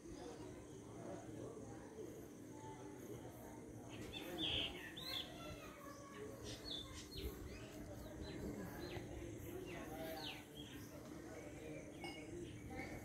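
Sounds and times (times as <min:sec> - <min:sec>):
faint low background noise: 0:00.0 - 0:13.0
small birds chirping: 0:03.3 - 0:13.0.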